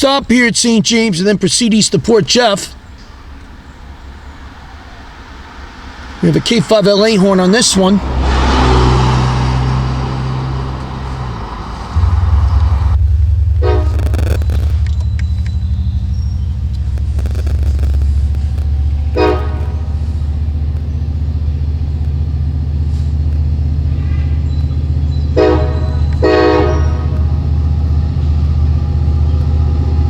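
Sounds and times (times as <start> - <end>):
diesel engine low rumble: 1.6 - 30.0
locomotive horn blasts: 11.0 - 20.6, 25.3 - 27.4.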